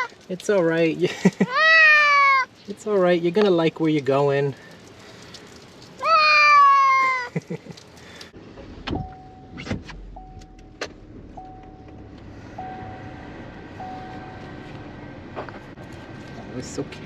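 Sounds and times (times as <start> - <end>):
cat meowing: 1.5 - 2.5, 6.0 - 7.3
electronic warning chime: 12.6 - 14.5.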